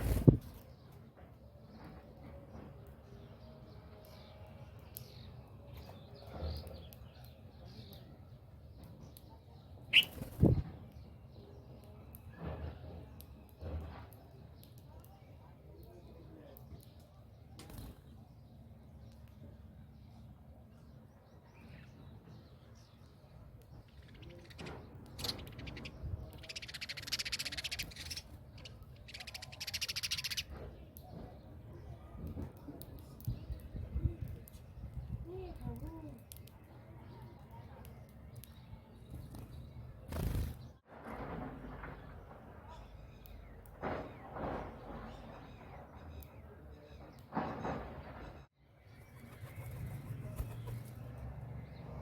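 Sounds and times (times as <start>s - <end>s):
wing flurry: 0.0s - 0.7s, 9.9s - 10.8s, 24.0s - 30.7s, 39.0s - 40.8s, 48.9s - 51.4s
faint bird chirps: 3.4s - 12.4s, 13.2s - 40.6s, 48.3s - 51.8s
birds giving rattling calls: 9.8s - 11.1s, 23.7s - 31.9s, 38.0s - 40.8s, 41.7s - 51.9s.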